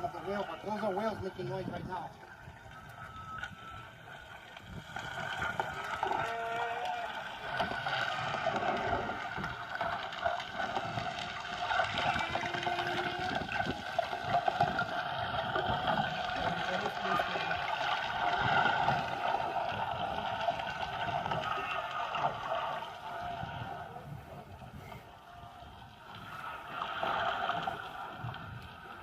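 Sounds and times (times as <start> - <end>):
boat engine: 0.0 - 29.0
whale moaning calls: 5.8 - 9.3, 11.8 - 14.2.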